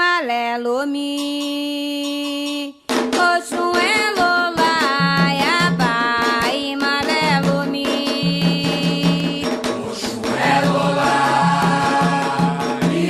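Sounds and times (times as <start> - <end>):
hand drums and percussion: 0.9 - 13.0
voices singing: 3.7 - 13.0.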